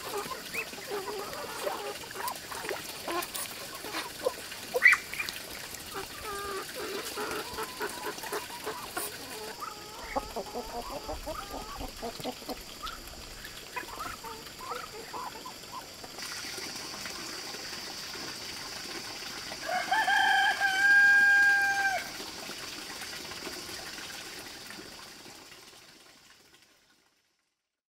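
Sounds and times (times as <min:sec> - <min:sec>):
chickens clucking: 0:00.0 - 0:17.1
steady high hiss: 0:00.0 - 0:19.7
rooster crowing: 0:19.6 - 0:22.1.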